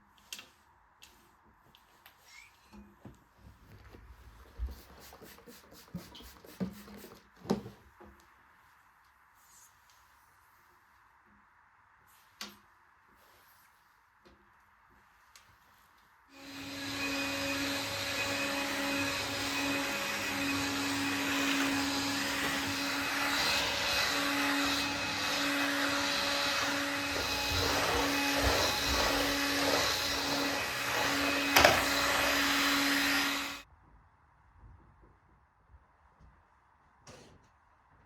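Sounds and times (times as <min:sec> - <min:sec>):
appliance motor humming: 0:16.4 - 0:33.6.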